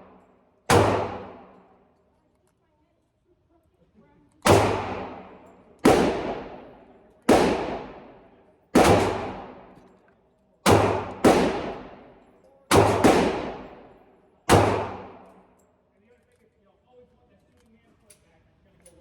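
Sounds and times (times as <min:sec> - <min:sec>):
pistol shots with echo: 0:00.0 - 0:01.7, 0:04.4 - 0:09.9, 0:10.6 - 0:15.5.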